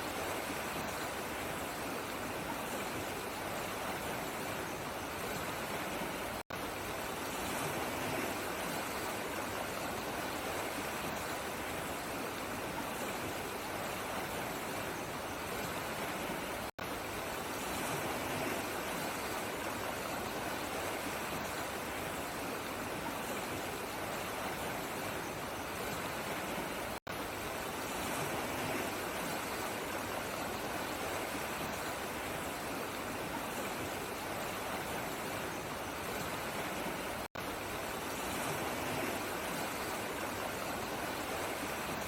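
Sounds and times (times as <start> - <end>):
stream water flowing: 0.0 - 42.0.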